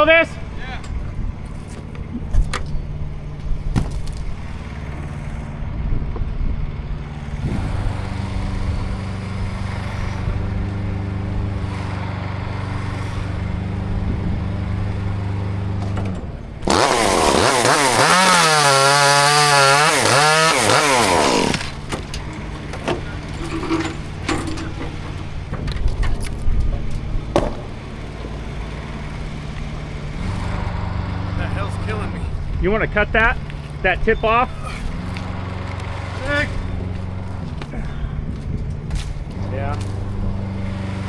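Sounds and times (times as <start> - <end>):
engine humming: 0.0 - 41.0
chainsaw revving and cutting: 7.2 - 15.8, 16.6 - 23.4, 27.9 - 32.5, 34.5 - 37.7.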